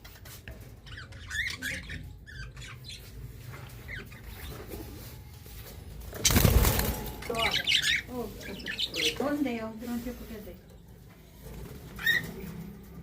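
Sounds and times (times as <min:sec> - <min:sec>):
budgerigars chirping: 0:07.3 - 0:09.4.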